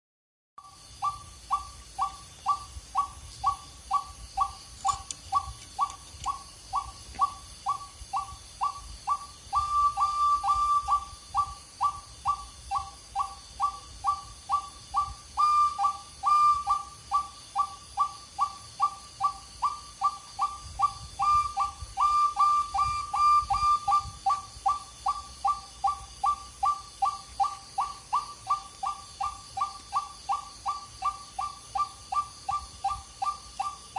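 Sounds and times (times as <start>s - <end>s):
person whistling bird call: 8.6s - 33.8s.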